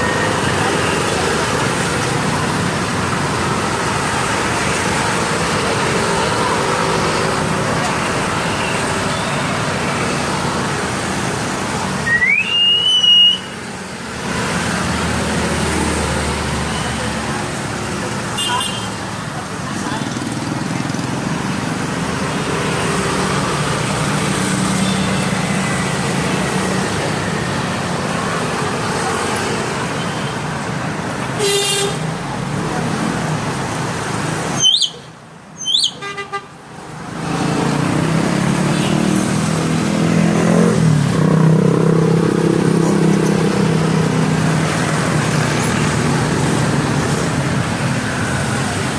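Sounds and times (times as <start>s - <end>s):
road traffic noise: 0.0s - 48.9s
bird rising whistles: 12.1s - 13.5s, 34.6s - 35.0s, 35.6s - 36.0s.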